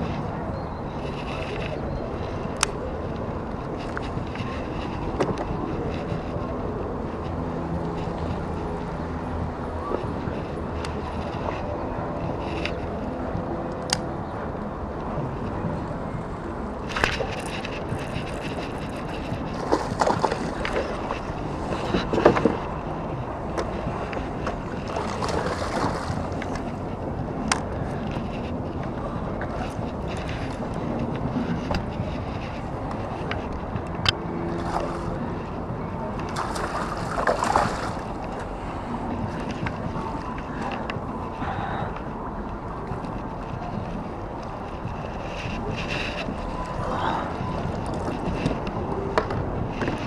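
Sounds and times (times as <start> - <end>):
wind buffeting microphone: 0.0 - 50.0
water sloshing around kayak: 16.7 - 50.0.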